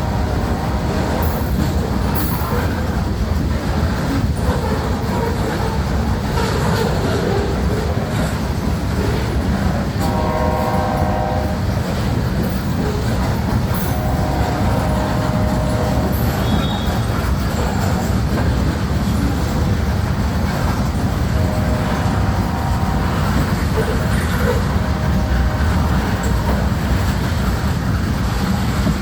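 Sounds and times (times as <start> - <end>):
locomotive air horn blasts: 0.0 - 1.5, 10.0 - 12.1, 12.8 - 17.2, 21.2 - 27.3
rumble of passing train: 0.0 - 29.0.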